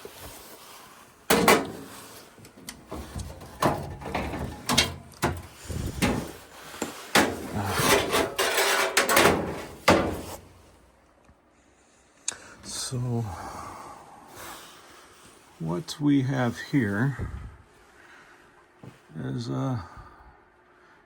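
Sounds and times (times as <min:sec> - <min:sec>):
parts being moved by hand: 0:01.3 - 0:10.8.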